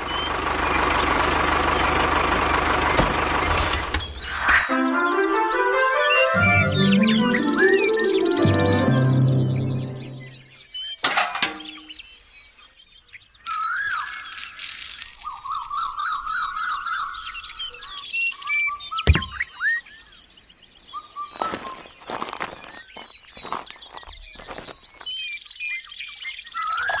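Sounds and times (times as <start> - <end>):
birds chirping: 0.0 - 5.2, 6.0 - 27.0
sharp knock: 19.1 - 19.4.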